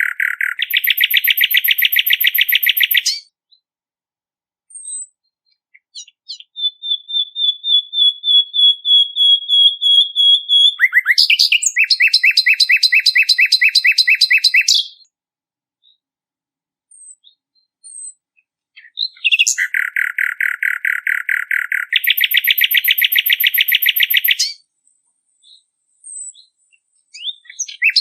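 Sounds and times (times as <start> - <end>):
bird chattering: 0.0 - 3.2, 5.8 - 15.0, 18.8 - 24.6, 27.2 - 28.0
bird chips: 0.0 - 3.2, 10.8 - 14.8, 18.8 - 24.6
songbird trilling: 0.0 - 3.3, 5.7 - 15.1, 18.8 - 24.6, 27.1 - 28.0.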